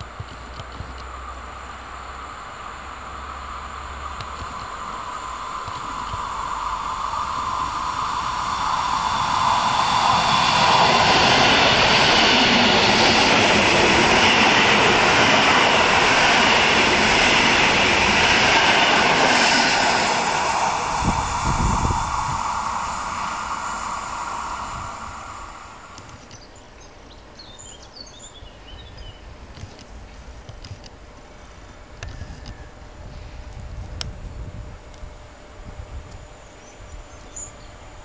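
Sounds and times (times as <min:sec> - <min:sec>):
train wheels rushing on rail: 0:00.0 - 0:26.6.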